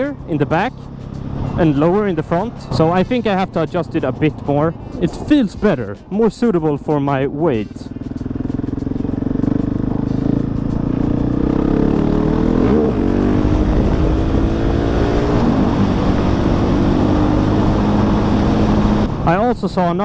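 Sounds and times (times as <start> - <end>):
motorcycle engine running: 0.0 - 19.6
wind noise: 12.7 - 18.0.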